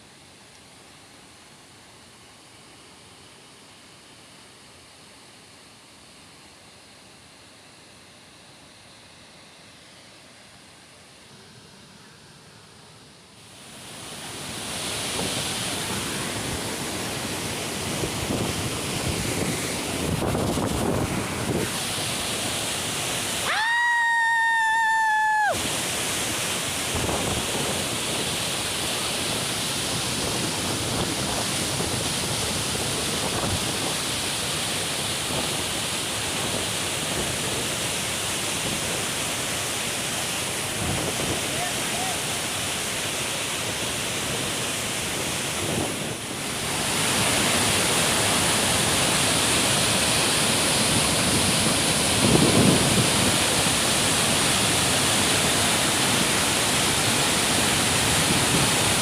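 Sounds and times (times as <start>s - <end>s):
waterfall rushing: 13.3s - 59.0s.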